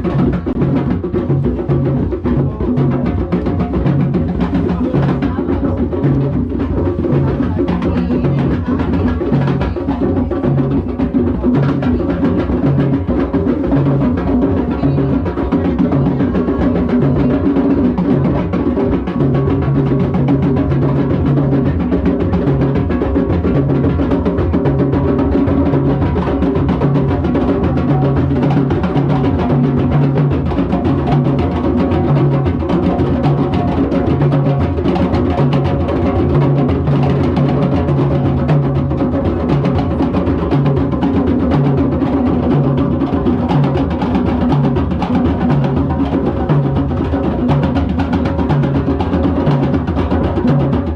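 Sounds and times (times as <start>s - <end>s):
hand drums in drum circle: 0.0s - 50.9s
low drum beat: 0.0s - 50.9s.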